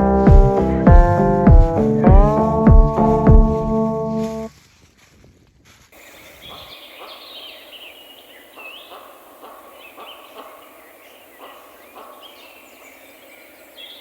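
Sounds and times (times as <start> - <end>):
songbirds chirping: 0.0 - 4.5, 5.9 - 14.0
soft brushing noise: 2.9 - 7.4.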